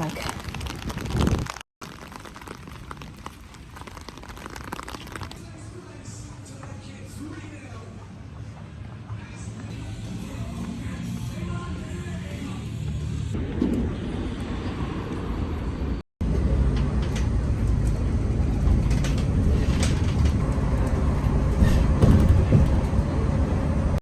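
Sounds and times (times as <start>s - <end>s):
moving vehicle rumble: 5.1s - 24.0s.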